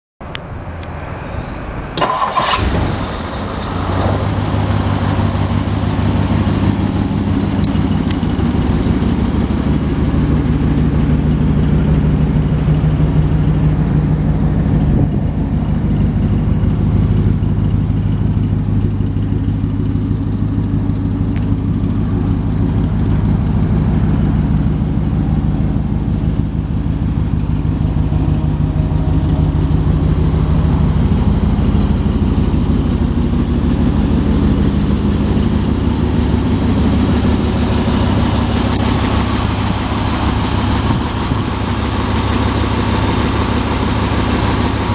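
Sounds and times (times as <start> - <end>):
car engine idling: 0.2 - 44.9
car starter motor: 2.0 - 3.8.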